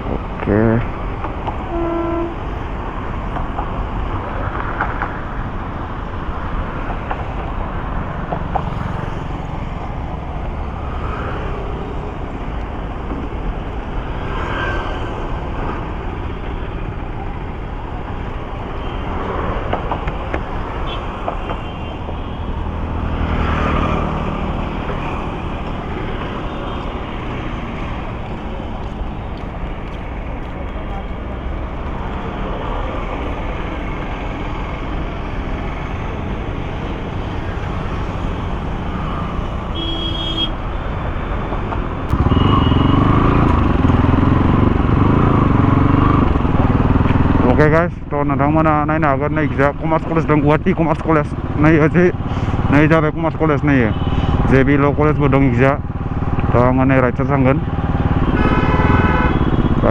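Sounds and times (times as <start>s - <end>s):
another vehicle engine: 0.0s - 47.7s, 49.8s - 59.9s
vehicle horn: 1.7s - 2.6s, 20.7s - 22.8s, 39.3s - 40.7s, 42.1s - 43.7s, 53.8s - 54.4s, 58.2s - 59.9s
motorcycle engine: 5.1s - 47.7s, 53.7s - 59.9s.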